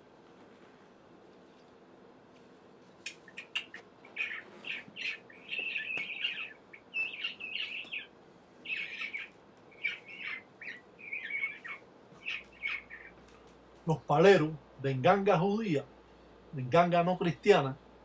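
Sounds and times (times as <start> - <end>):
bird giving short high calls: 8.7 - 13.2.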